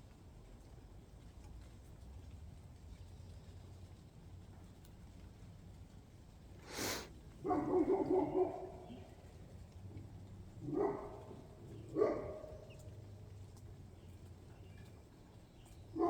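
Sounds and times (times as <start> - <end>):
dog barking: 7.4 - 9.1, 10.6 - 12.9.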